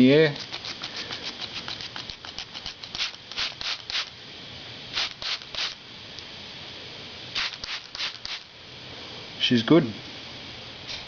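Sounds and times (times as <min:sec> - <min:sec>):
trigger sprayer squirting: 0:00.4 - 0:04.1, 0:05.0 - 0:05.8, 0:07.4 - 0:08.4.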